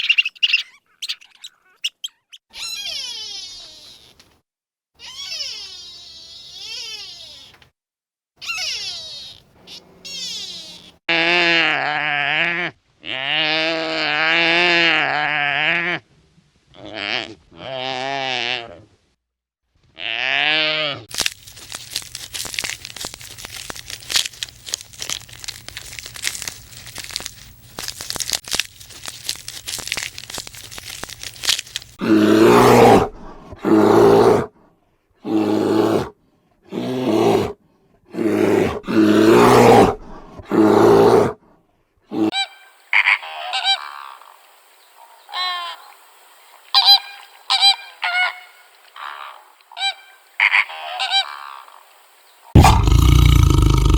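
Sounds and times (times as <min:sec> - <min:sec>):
harsh animal calls: 0:00.0 - 0:04.2, 0:05.0 - 0:07.6, 0:08.4 - 0:16.0, 0:32.0 - 0:34.5, 0:35.2 - 0:41.4, 0:52.6 - 0:53.9
short high animal calls: 0:00.0 - 0:04.2, 0:05.0 - 0:07.6, 0:08.4 - 0:13.6
crackling noise: 0:21.1 - 0:32.0, 0:52.6 - 0:53.9.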